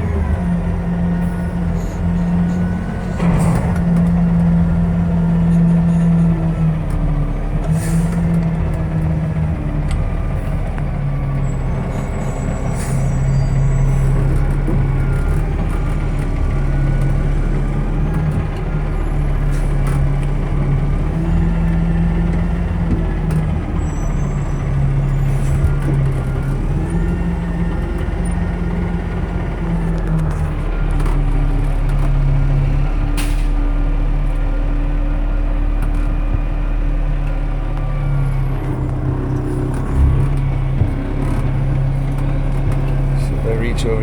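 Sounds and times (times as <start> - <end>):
garbage truck diesel engine: 0.0 - 44.0
knocks and clatters: 2.5 - 9.0.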